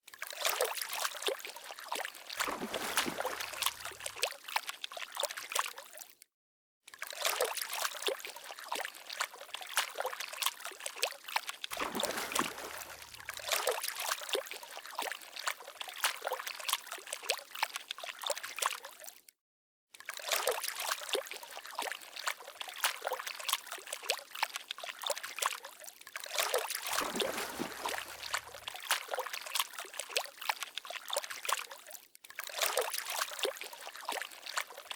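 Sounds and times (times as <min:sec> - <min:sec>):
water trickling: 0:02.4 - 0:04.2, 0:11.8 - 0:13.7, 0:26.9 - 0:28.8.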